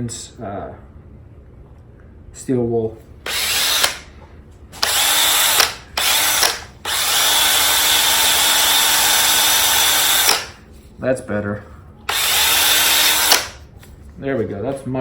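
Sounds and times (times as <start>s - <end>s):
electric drill motor whine: 3.3s - 4.1s, 4.8s - 10.6s, 12.1s - 13.6s.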